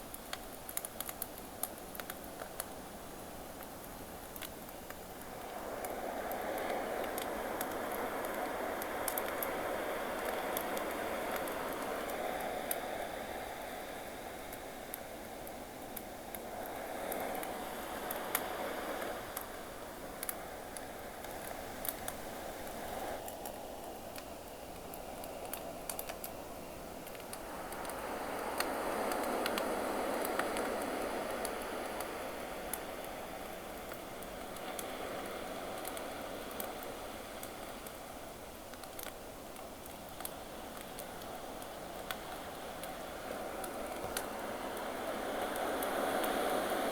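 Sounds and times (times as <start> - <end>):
campfire popping and crackling: 0.0 - 12.8, 19.3 - 26.4, 27.0 - 46.9
sea waves: 42.2 - 46.9.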